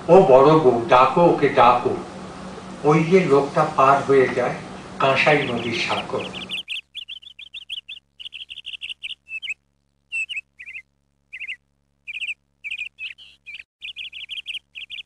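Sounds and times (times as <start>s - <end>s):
small birds chirping: 4.7s - 15.0s.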